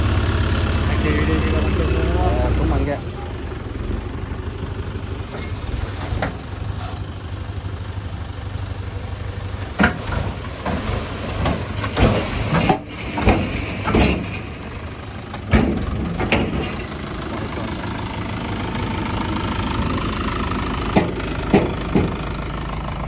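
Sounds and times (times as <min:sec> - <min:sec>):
tractor diesel engine rumbling: 0:00.0 - 0:23.0
sharp knocks and clatters: 0:09.8 - 0:17.1, 0:20.9 - 0:22.3.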